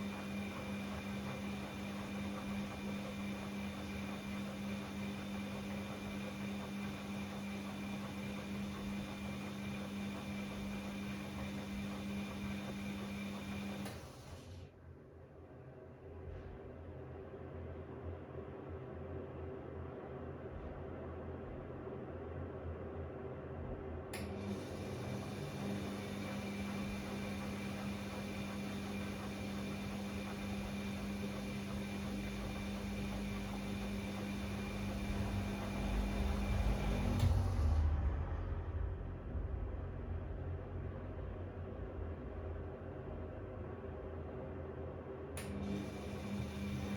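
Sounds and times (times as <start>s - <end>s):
washing machine motor hum: 0.0s - 46.9s
washing machine drum rumble: 26.4s - 41.3s
low rumble: 35.1s - 44.0s.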